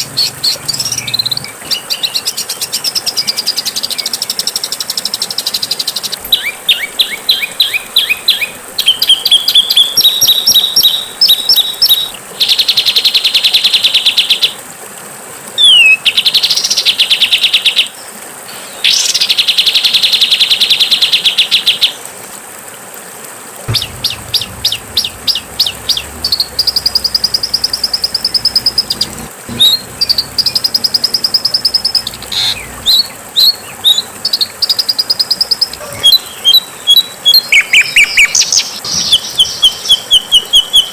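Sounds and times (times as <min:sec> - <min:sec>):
songbird trills: 0:23.7 - 0:40.9.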